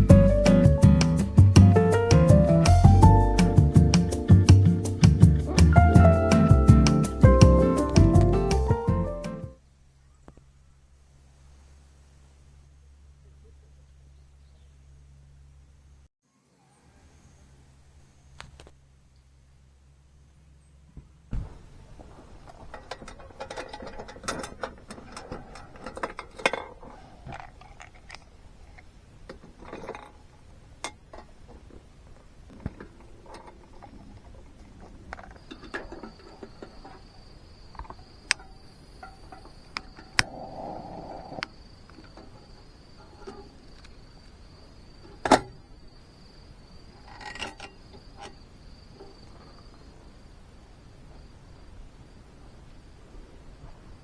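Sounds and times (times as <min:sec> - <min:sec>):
objects clicking and clattering: 0:22.1 - 0:40.3
high-pitched insect trill: 0:35.4 - 0:50.4.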